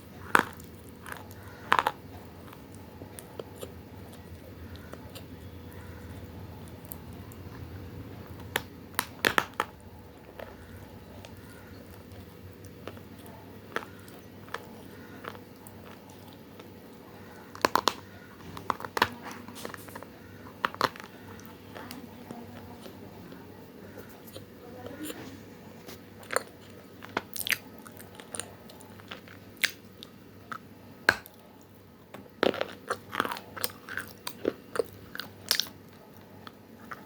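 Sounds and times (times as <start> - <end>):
steady low hum: 0.0 - 37.0
clay chunks crunched by biting: 6.6 - 22.8.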